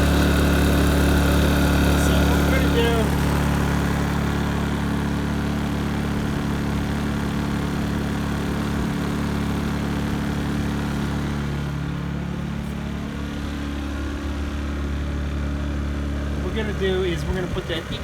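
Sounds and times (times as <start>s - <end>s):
generator running: 0.0s - 18.0s.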